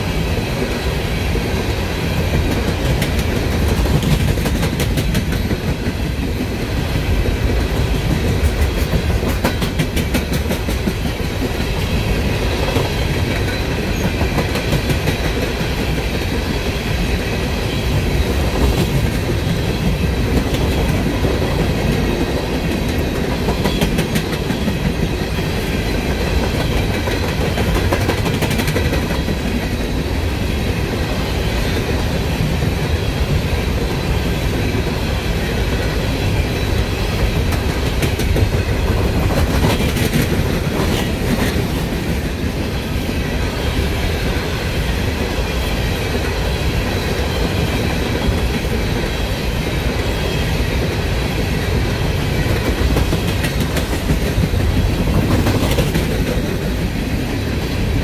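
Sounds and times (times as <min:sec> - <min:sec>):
train wheels rumbling on rails: 0:00.0 - 0:58.0
wheels clicking over rail joints: 0:02.2 - 0:11.9, 0:18.0 - 0:30.0, 0:36.7 - 0:42.6.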